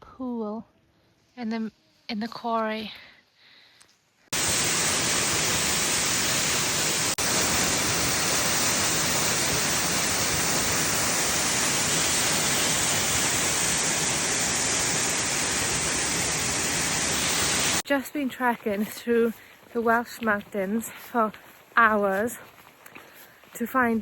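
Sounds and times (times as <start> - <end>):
waterfall rushing: 4.4 - 17.8.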